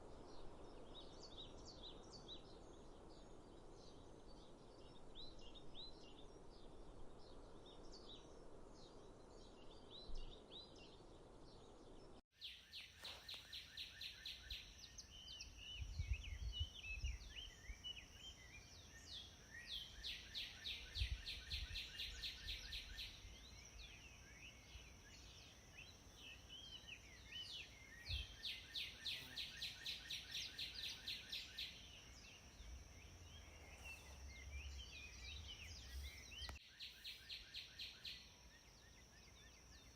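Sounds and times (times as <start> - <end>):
birds singing rapid trills: 11.6 - 39.9
birds chirping: 12.6 - 39.9.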